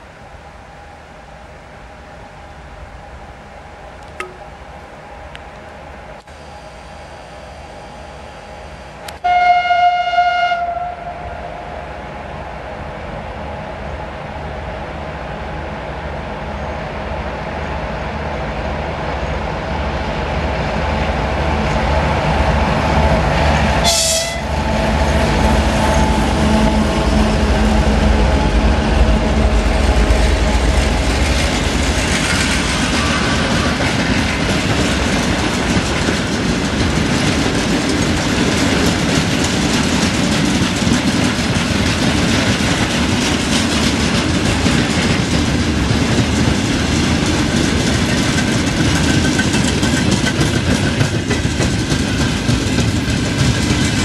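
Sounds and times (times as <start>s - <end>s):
diesel locomotive engine: 0.0s - 54.0s
train horn: 9.1s - 12.0s, 23.6s - 29.2s
wagon wheels clacking over rail joints: 31.2s - 54.0s.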